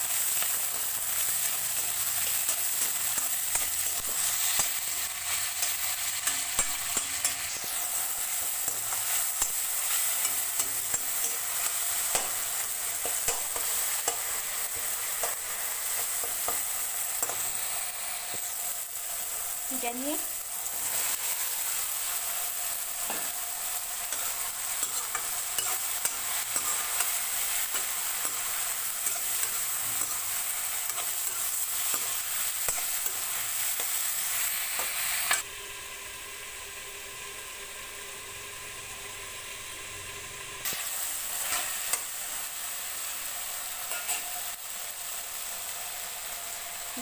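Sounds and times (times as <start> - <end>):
food sizzling in a pan: 0.0 - 47.0
spoon scraping and stirring: 24.1 - 30.2.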